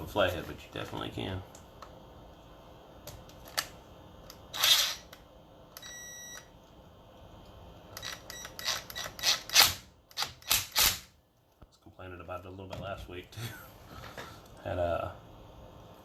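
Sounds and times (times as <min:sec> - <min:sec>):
short electronic beep: 0:05.8 - 0:06.4.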